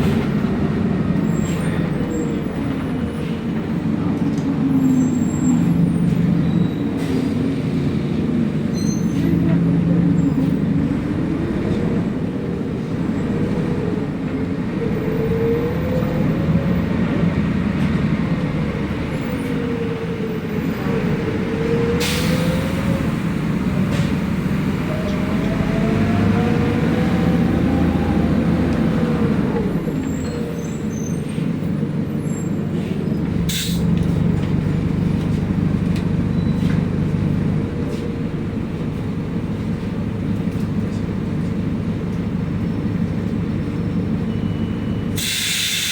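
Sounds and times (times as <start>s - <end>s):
bus engine and road noise: 0.0s - 45.9s
brief air hisses: 45.2s - 45.9s.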